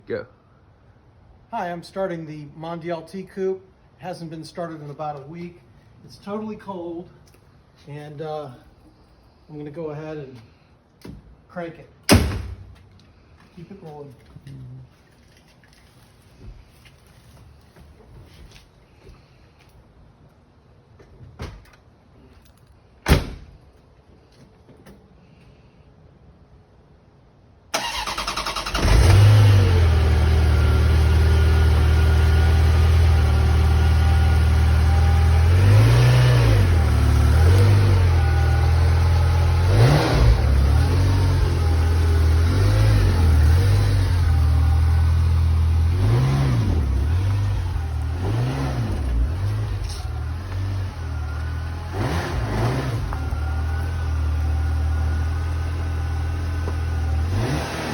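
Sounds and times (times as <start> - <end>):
starter motor cranking: 27.8 - 29.6
car engine fast idle: 27.8 - 34.0
engine throttle blips: 27.8 - 57.9.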